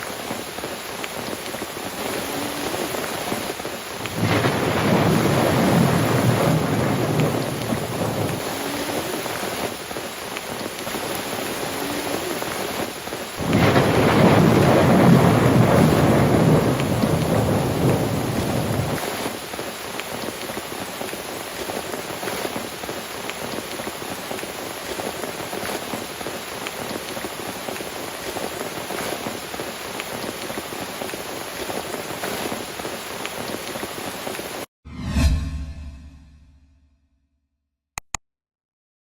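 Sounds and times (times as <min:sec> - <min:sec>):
rain falling: 0:00.0 - 0:34.7
thunder rolling: 0:02.1 - 0:09.9, 0:10.6 - 0:19.1.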